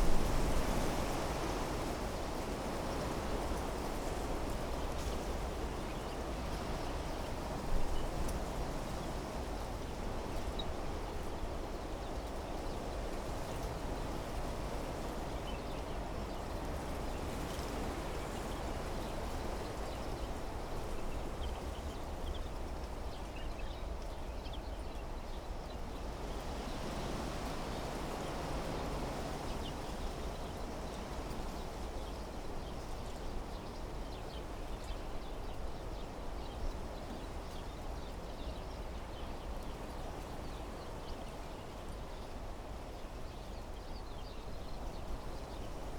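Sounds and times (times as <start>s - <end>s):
wind blowing through trees: 0.0s - 3.4s.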